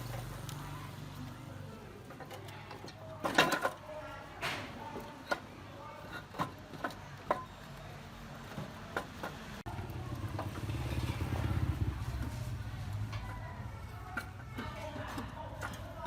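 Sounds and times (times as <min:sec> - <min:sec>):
scattered clicks and knocks: 0:02.0 - 0:07.8, 0:08.4 - 0:11.3, 0:12.2 - 0:16.0.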